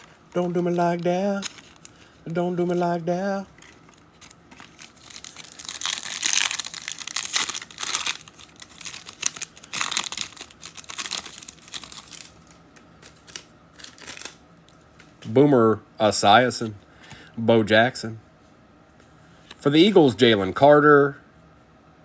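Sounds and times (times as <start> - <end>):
foil wrapper tearing and crinkling: 0.0 - 14.4.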